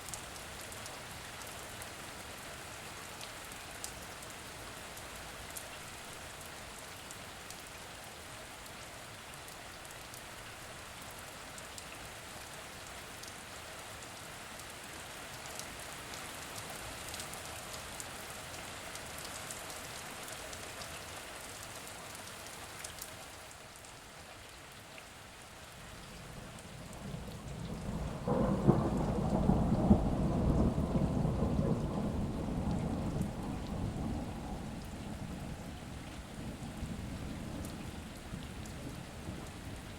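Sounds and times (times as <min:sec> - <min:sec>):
steady rain falling: 0:00.0 - 0:39.9
rolling thunder: 0:26.3 - 0:39.9.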